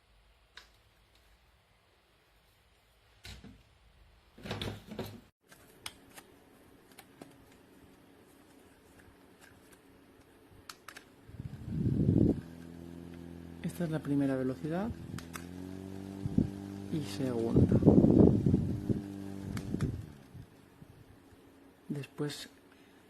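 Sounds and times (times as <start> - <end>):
small fan motor running: 11.2 - 21.6.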